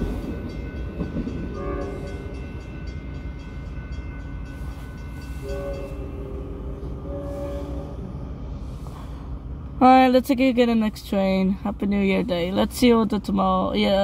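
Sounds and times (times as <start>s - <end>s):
crossing warning bell ringing: 0.0s - 8.6s
train rumbling: 0.0s - 14.0s
train horn: 1.5s - 2.4s, 5.4s - 8.2s.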